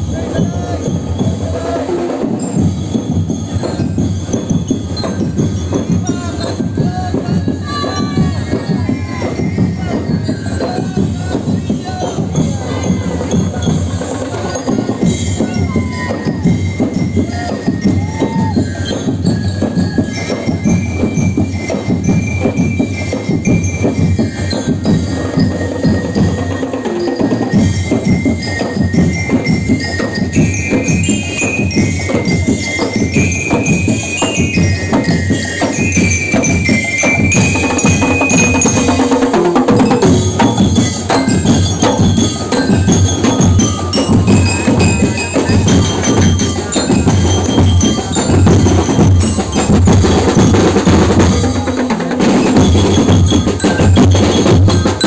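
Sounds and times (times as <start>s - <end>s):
fast dense drumming: 0.0s - 55.0s
bell-like struck notes: 24.6s - 55.0s.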